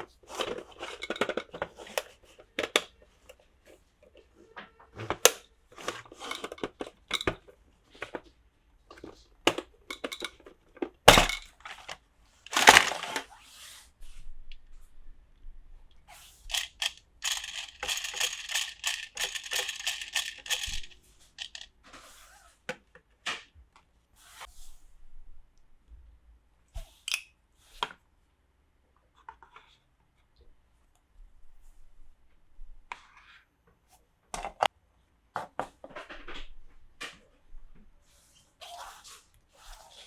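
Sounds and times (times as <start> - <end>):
plastic toy pieces clicking: 5.3 - 7.4, 11.1 - 11.4, 12.5 - 13.2, 16.5 - 21.7
scratchy packaging rustle: 12.5 - 13.3.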